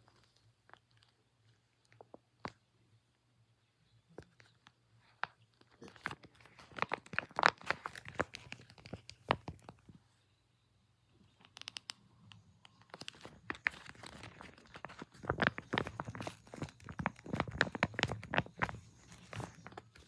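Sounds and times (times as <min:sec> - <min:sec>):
squishy toy crinkling: 0:05.6 - 0:09.9, 0:12.7 - 0:20.0.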